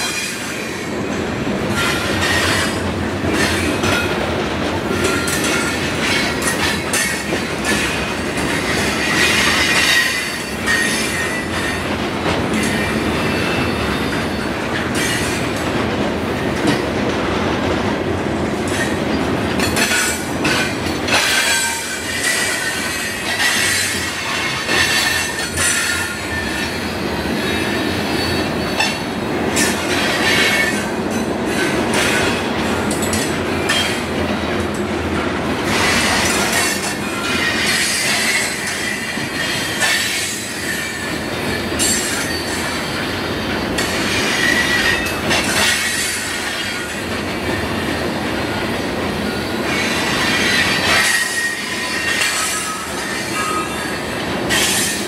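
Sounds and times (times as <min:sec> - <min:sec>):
wheels clattering on rails: 0:00.0 - 0:55.0.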